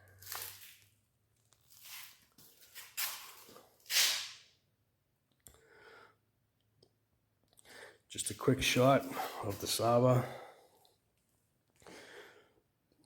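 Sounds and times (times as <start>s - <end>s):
person breathing in puffs: 11.8s - 12.6s.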